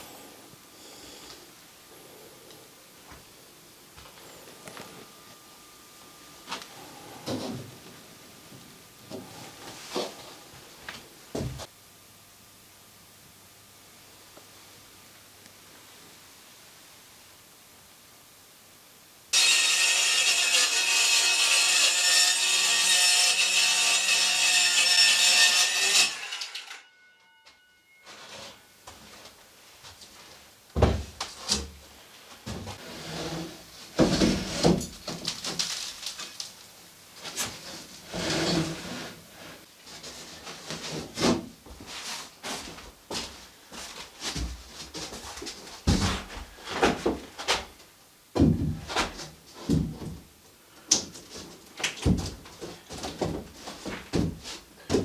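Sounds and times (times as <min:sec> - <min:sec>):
saw cutting wood: 0:19.3 - 0:26.9
irregular knocks and thuds: 0:45.9 - 0:47.6, 0:48.3 - 0:50.2, 0:52.0 - 0:55.0
thumps and knocks: 0:48.4 - 0:50.2.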